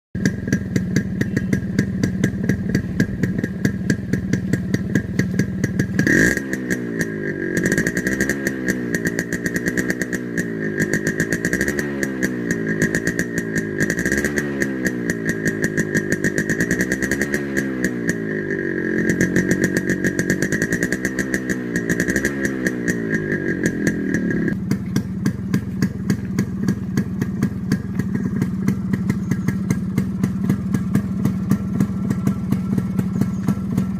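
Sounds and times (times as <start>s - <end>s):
two-stroke engine idling and revving: 0.2s - 33.9s.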